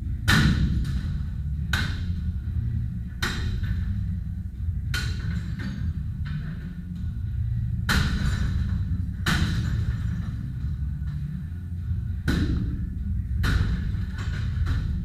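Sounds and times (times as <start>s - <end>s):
heavy blows smashing objects: 0.2s - 2.1s, 7.9s - 10.6s.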